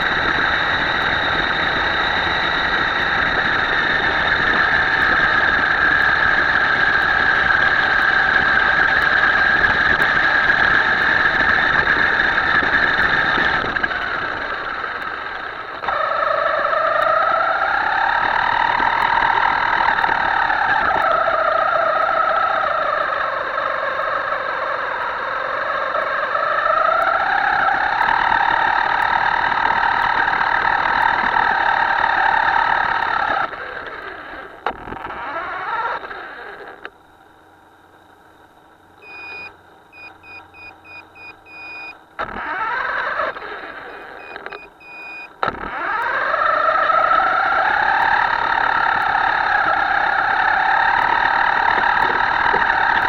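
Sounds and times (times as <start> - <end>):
electric motor whining: 0.0 - 36.9, 39.0 - 53.0
short high electronic beeps: 39.0 - 42.0, 44.2 - 45.3.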